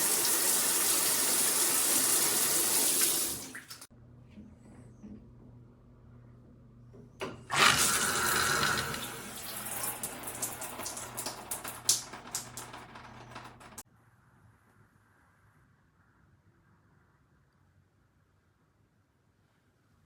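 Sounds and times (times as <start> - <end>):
shower head spraying water: 0.0 - 3.9, 7.5 - 13.8.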